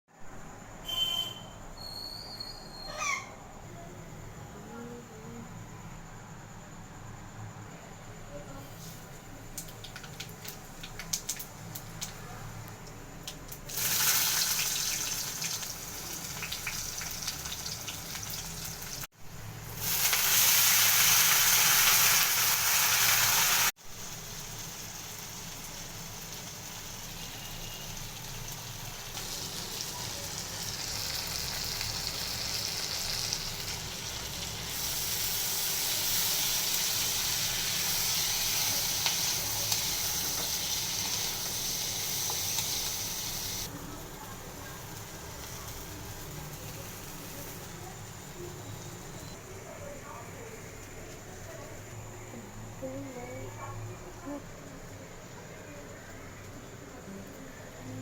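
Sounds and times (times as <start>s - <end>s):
food sizzling in hot oil: 8.6s - 49.4s.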